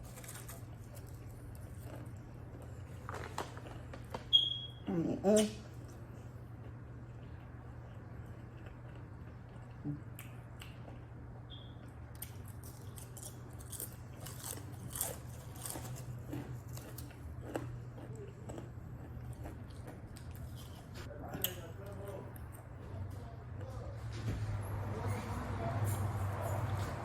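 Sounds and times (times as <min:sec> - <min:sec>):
chewing crunchy sandwich: 0:00.0 - 0:04.2, 0:05.7 - 0:23.0
low steady hum: 0:00.0 - 0:25.1.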